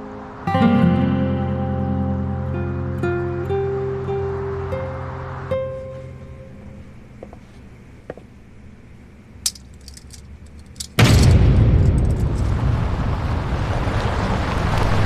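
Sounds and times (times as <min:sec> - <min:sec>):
loud rumbling rush of noise: 0:11.0 - 0:15.0.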